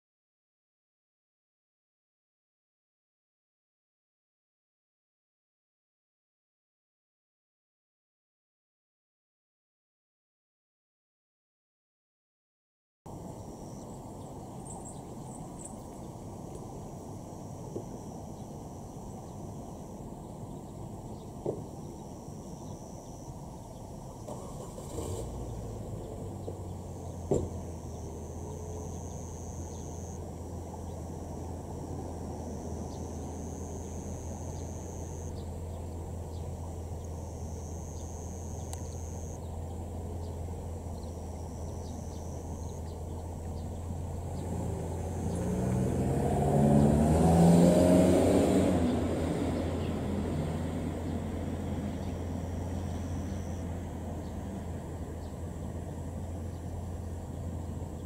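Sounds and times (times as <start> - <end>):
brief knock: 27.3 - 27.6.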